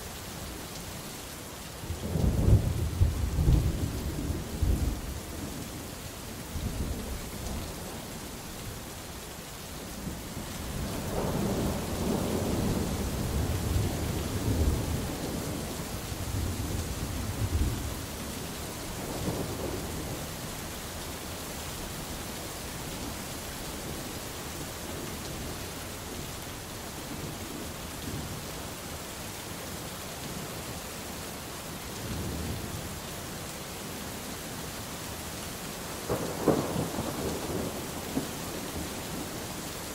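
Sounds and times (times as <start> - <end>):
heavy rain hissing: 0.0 - 39.9
rolling thunder: 36.1 - 39.3.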